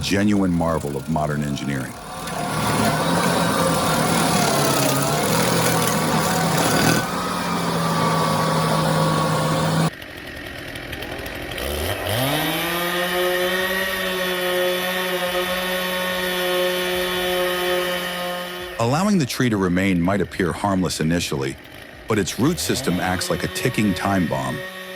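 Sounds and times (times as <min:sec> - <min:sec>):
cutting machinery running: 0:00.0 - 0:19.1, 0:20.3 - 0:24.9
motor spinning up: 0:00.1 - 0:12.5.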